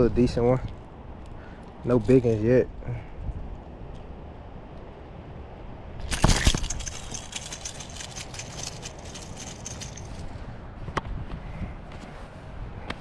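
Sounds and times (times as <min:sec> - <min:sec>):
wind on microphone: 0:03.0 - 0:03.7, 0:05.9 - 0:13.0
loud clatter: 0:06.1 - 0:10.2.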